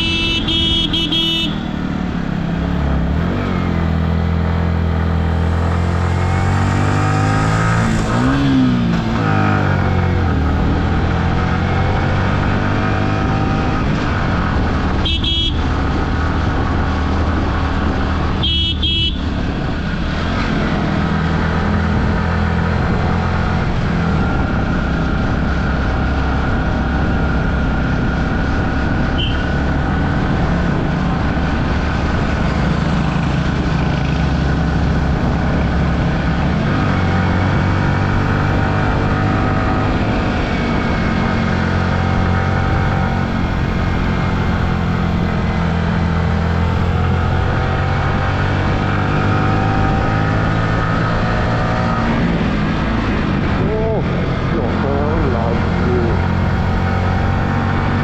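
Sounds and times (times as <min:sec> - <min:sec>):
vehicle horn honking: 0:00.0 - 0:01.7, 0:15.0 - 0:15.7, 0:18.4 - 0:19.3, 0:29.2 - 0:29.6
motorcycle engine droning: 0:00.0 - 0:58.0.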